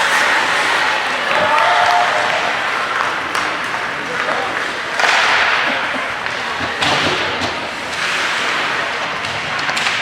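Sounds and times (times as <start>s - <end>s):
hockey sticks and puck knocks: 0.0s - 10.0s
crowd cheering and clapping: 1.2s - 2.7s.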